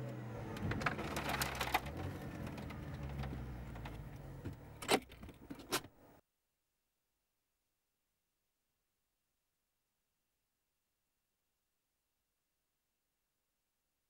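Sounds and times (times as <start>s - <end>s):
car engine and road noise: 0.0s - 6.1s.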